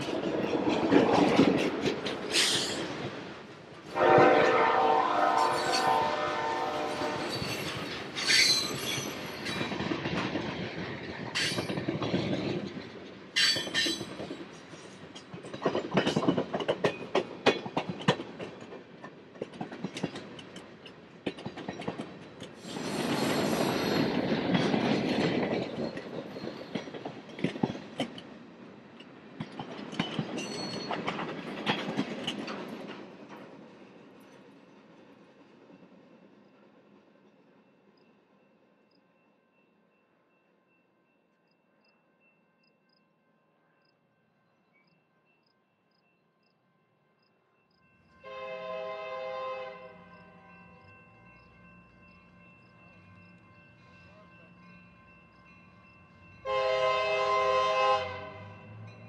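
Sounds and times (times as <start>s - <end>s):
train wheels clicking over rail joints: 0.0s - 4.0s, 7.1s - 34.5s
wheels screeching on rails: 0.0s - 18.2s, 21.4s - 28.2s.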